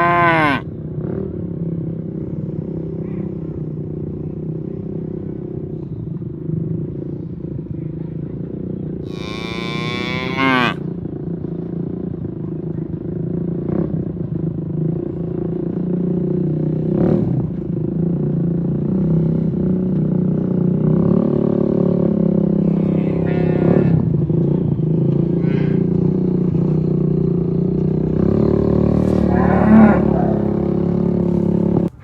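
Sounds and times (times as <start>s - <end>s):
cow mooing: 0.0s - 0.6s, 9.0s - 10.8s, 22.6s - 24.2s, 28.9s - 31.5s
low motor drone: 14.0s - 32.0s.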